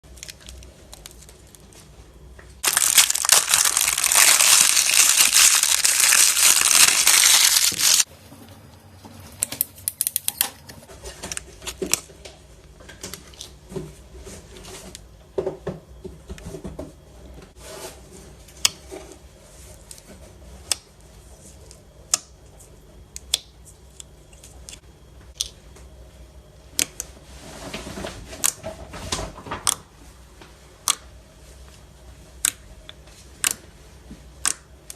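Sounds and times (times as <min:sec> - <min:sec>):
plastic packaging tearing and crinkling: 0:02.6 - 0:08.1.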